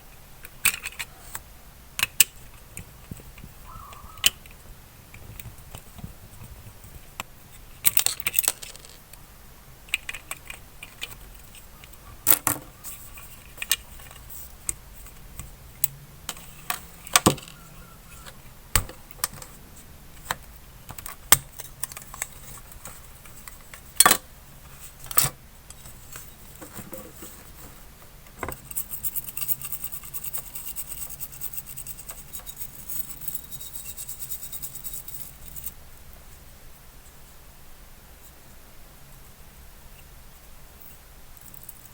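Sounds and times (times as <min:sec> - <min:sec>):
metal parts and tools clinking: 0:07.8 - 0:09.1, 0:28.5 - 0:35.8
fast light ticking and scratching: 0:28.6 - 0:35.8.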